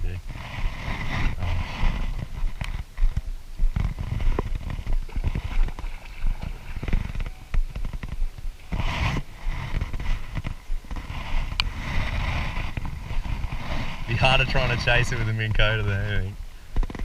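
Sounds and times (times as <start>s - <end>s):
low knocks and thumps on a boat: 0.1s - 17.0s.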